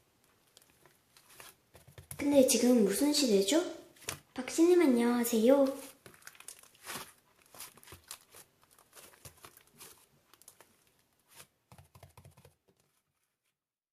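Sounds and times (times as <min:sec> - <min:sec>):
faint taps and rustles: 0:00.5 - 0:02.2.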